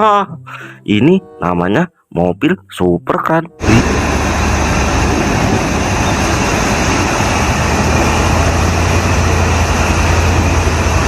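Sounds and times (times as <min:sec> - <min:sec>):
car engine hum: 0:03.6 - 0:11.0
road noise: 0:03.6 - 0:11.0.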